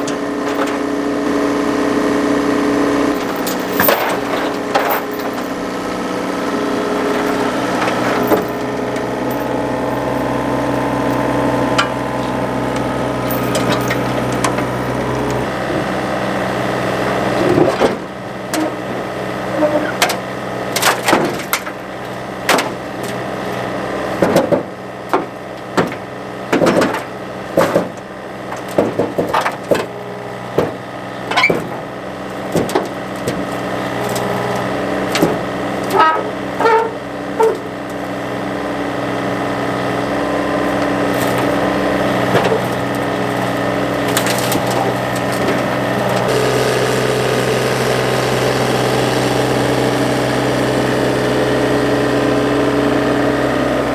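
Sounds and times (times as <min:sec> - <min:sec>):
machine engine running: 0:00.0 - 0:21.1, 0:31.8 - 0:53.9
sharp cracks and crunching impacts: 0:42.3 - 0:51.4.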